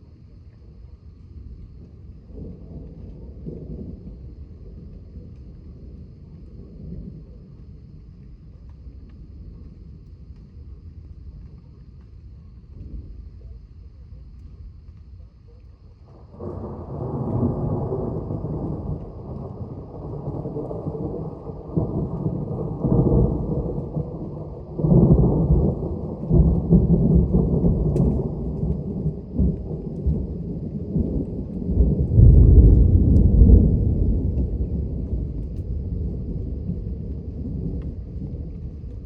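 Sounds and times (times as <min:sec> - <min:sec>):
rolling thunder: 0:16.1 - 0:39.0.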